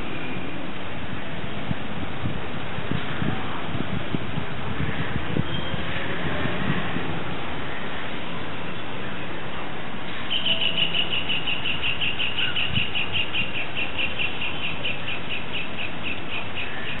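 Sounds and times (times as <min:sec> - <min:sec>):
bird chirping rapidly: 0:10.3 - 0:17.0.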